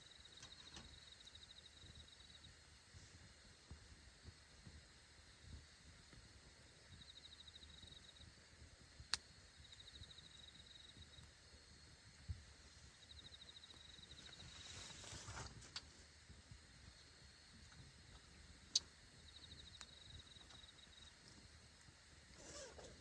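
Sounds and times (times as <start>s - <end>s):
campfire crackling: 0.0s - 23.0s
insect trilling: 12.9s - 15.4s, 18.8s - 21.3s, 22.3s - 23.0s
fire pop: 18.7s - 19.0s.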